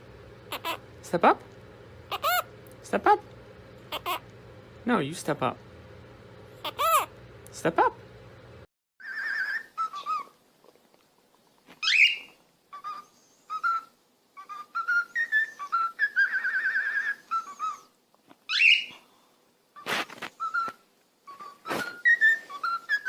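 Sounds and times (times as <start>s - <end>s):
parrot whistling: 0.5s - 0.8s, 2.1s - 2.5s, 3.9s - 4.2s, 6.6s - 7.1s, 9.0s - 10.3s, 11.8s - 17.9s, 18.5s - 18.9s, 20.4s - 23.0s.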